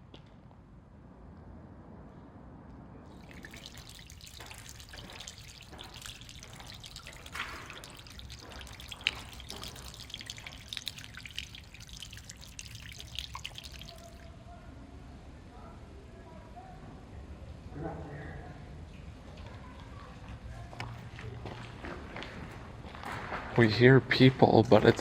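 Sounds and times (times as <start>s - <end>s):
water dripping and trickling: 3.1s - 14.3s, 24.6s - 25.0s.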